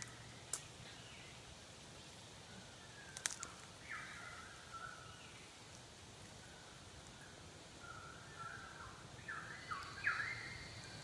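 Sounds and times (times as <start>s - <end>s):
faint bird whistles: 9.2s - 11.0s.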